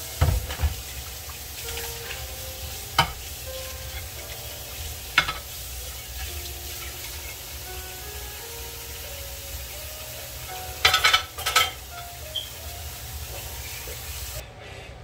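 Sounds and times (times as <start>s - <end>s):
vegetables sizzling in a wok: 0.0s - 14.4s.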